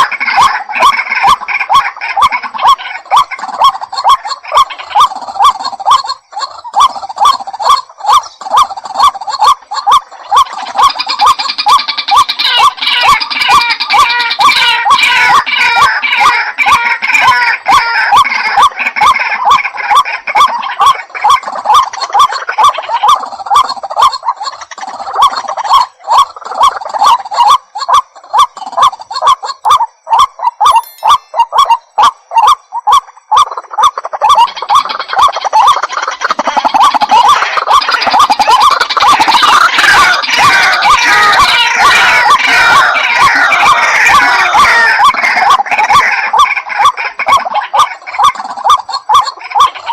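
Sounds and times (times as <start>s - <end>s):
waterhen calling: 0.0s - 49.9s.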